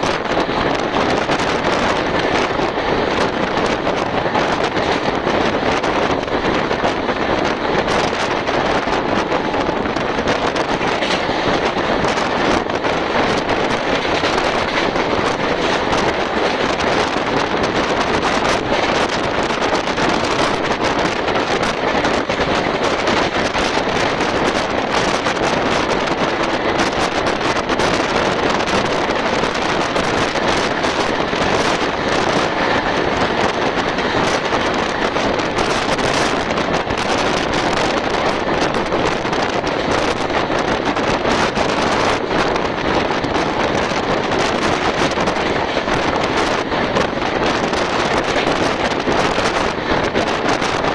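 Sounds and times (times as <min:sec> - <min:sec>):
train running noise: 0:00.0 - 0:50.9
wind buffeting microphone: 0:00.0 - 0:50.9.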